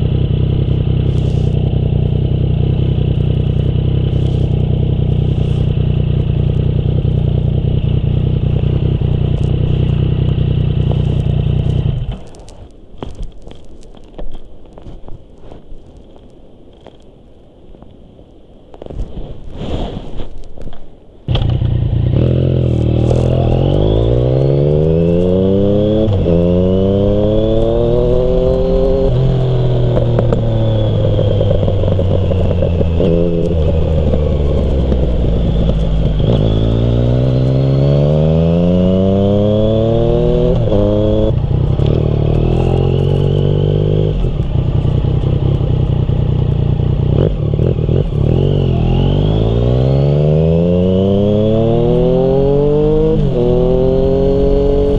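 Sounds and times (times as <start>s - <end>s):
motorcycle engine revving: 0.0s - 12.6s, 21.3s - 54.9s.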